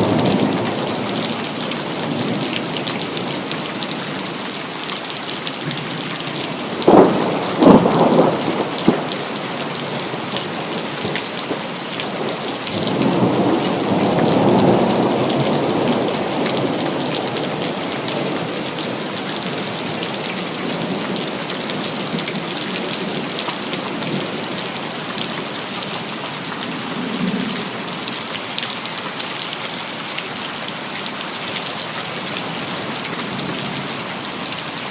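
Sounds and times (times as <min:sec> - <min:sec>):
rain falling: 0:00.0 - 0:34.9
thunder cracking and rumbling: 0:06.6 - 0:19.1.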